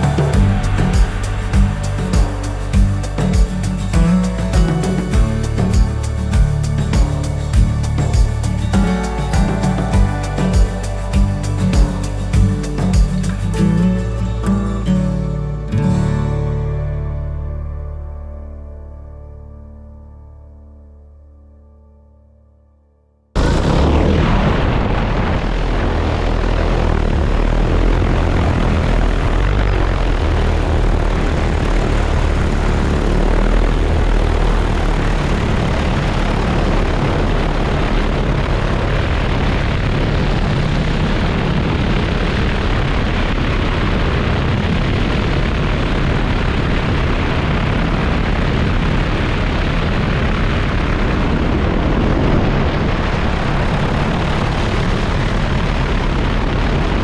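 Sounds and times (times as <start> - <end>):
drone propellers running: 23.4 - 48.4.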